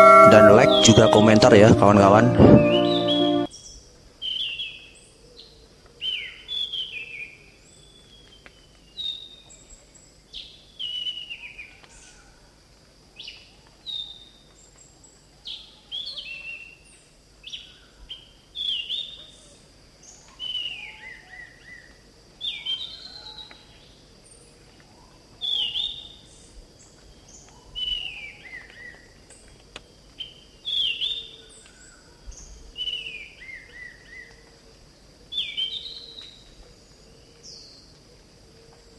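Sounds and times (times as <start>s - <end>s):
thrush singing whistled phrases: 0.0s - 3.5s.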